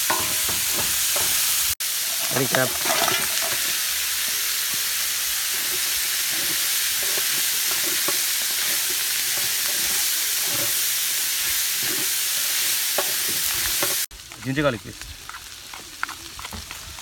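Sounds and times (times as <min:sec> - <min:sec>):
wooden spatula scraping pan: 0:00.0 - 0:03.8, 0:05.4 - 0:14.1
seafood sizzling in oil: 0:00.0 - 0:17.0.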